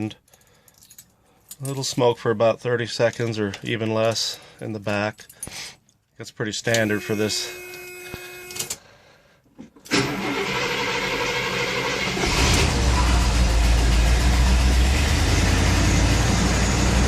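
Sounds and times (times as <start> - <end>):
car engine idling: 12.7 - 17.0.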